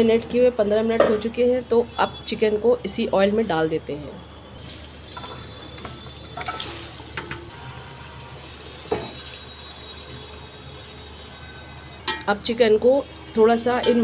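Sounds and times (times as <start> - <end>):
chicken sizzling in hot oil: 4.6 - 12.2.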